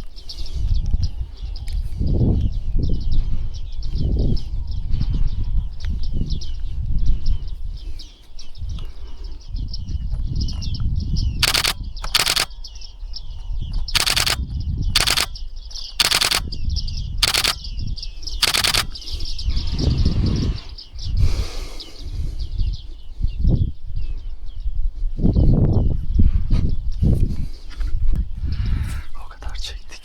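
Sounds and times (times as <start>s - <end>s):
loud bursts of noise: 18.4s - 18.9s.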